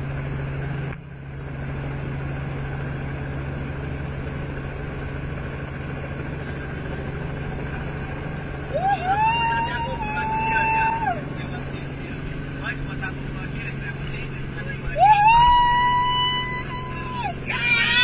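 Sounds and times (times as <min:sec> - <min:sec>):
helicopter engine and rotor: 0:00.0 - 0:08.8, 0:09.4 - 0:15.0.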